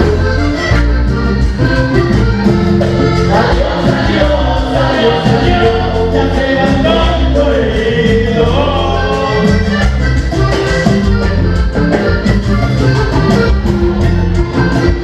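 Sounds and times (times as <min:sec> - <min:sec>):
accordion melody: 0:00.0 - 0:15.0
bass: 0:00.0 - 0:15.0
percussion beat: 0:00.0 - 0:15.0
person singing: 0:03.3 - 0:09.8.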